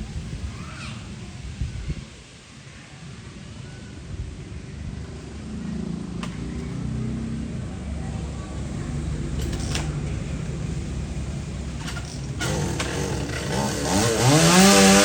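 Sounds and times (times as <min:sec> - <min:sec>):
chainsaw engine running low: 0:04.9 - 0:15.0.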